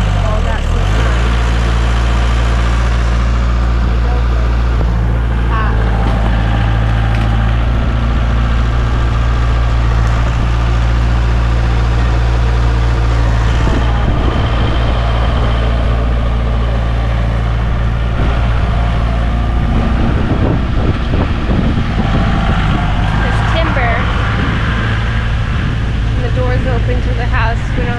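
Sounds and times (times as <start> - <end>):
tractor engine rumbling: 0.0 - 27.9.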